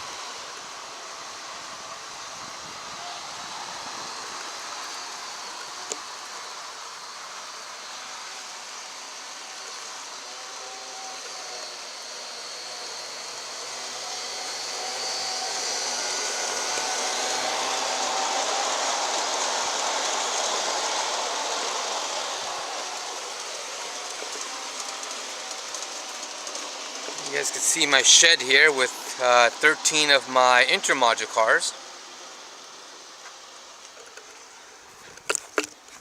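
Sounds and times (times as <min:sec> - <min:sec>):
model train motor whirring: 0:00.0 - 0:36.0.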